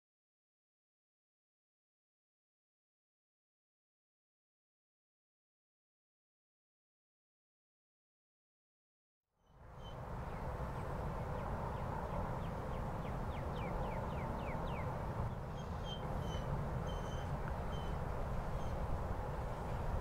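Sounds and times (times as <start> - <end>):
bird calls: 9.5 - 18.9.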